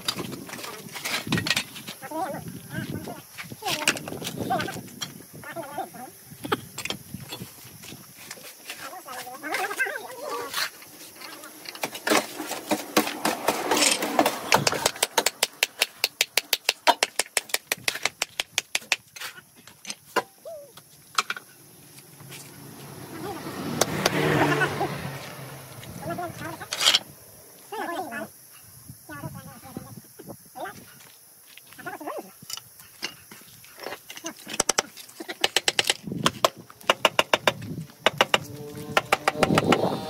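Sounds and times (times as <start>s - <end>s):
scattered knocks: 35.4s - 39.8s.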